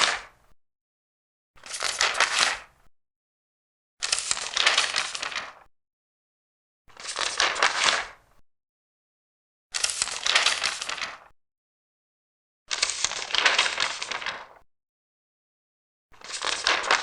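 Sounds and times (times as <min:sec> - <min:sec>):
paper pages turning: 0:01.6 - 0:02.7, 0:04.0 - 0:05.7, 0:07.0 - 0:08.1, 0:09.8 - 0:11.3, 0:12.7 - 0:14.6, 0:16.2 - 0:17.0.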